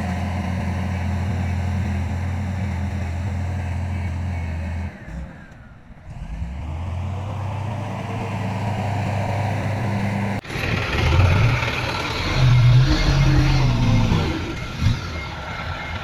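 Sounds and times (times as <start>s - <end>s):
heavy diesel engine droning: 0.0s - 16.0s.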